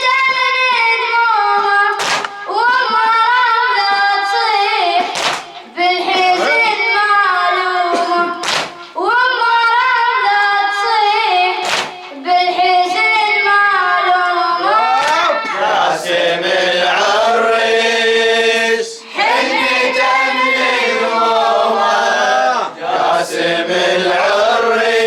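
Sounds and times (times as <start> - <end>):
sharp slaps: 1.9 - 2.6, 5.0 - 5.7, 7.9 - 9.0, 11.6 - 12.2, 15.0 - 15.6
person singing a lament: 2.4 - 10.2.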